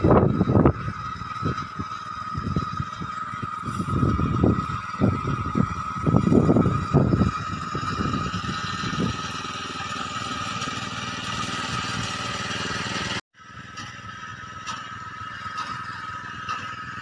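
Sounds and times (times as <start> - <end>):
constant whine: 0.0 - 17.0
tractor engine running: 0.0 - 17.0.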